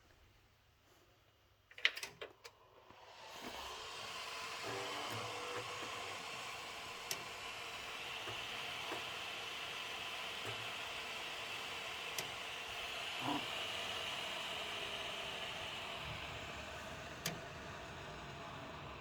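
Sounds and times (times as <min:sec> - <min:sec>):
computer fans whirring: 0:03.0 - 0:19.0.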